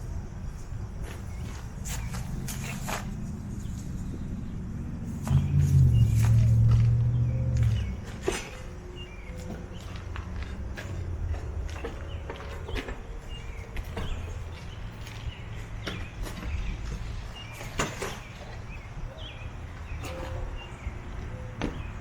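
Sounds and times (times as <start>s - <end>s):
low steady rumble: 0.0s - 15.5s
birds chirping: 0.0s - 22.0s.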